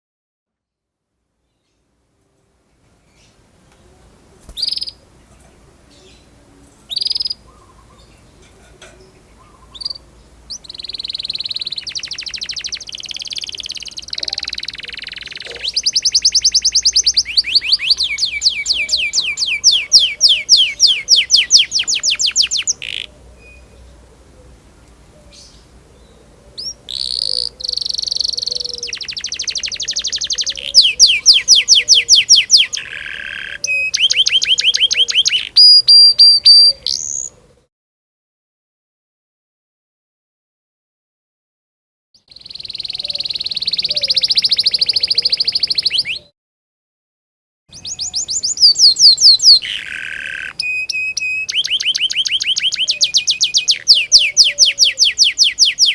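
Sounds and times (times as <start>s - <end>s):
canary singing trills: 4.4s - 5.1s, 6.9s - 8.4s, 9.0s - 24.1s, 25.2s - 37.4s, 42.3s - 46.3s, 47.7s - 55.9s.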